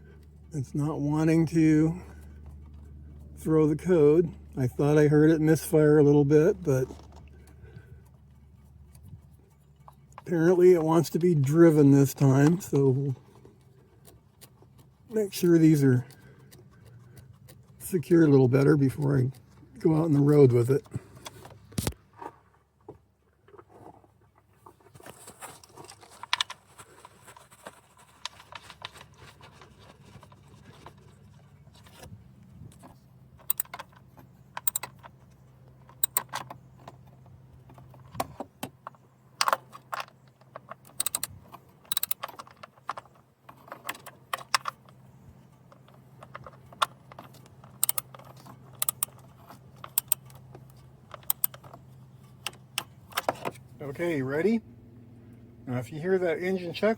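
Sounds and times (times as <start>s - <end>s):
low steady hum: 0.0s - 56.9s
metallic clicks of hand tools: 33.4s - 35.2s, 35.8s - 37.0s, 39.4s - 43.1s, 45.8s - 51.8s.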